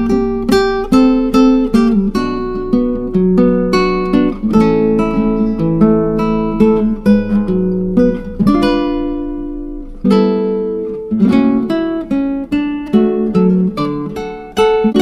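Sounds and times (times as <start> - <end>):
acoustic guitar plucked and strummed: 0.0 - 15.0.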